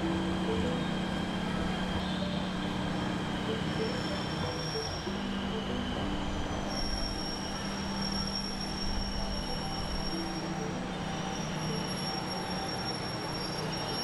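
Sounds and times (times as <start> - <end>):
electric train rumbling on rails: 0.0 - 14.0
thin high whine: 0.0 - 14.0.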